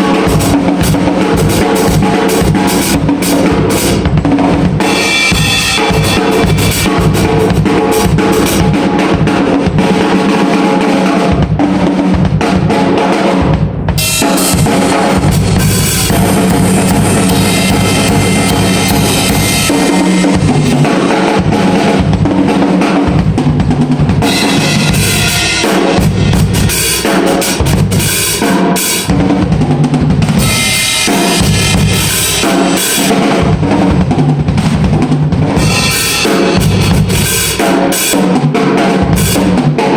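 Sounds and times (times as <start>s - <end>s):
drum kit playing: 0.0s - 39.9s.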